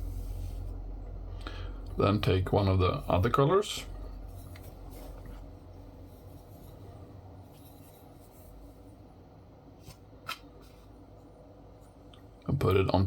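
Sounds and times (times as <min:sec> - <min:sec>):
wooden blocks being handled: 0:04.0 - 0:08.9.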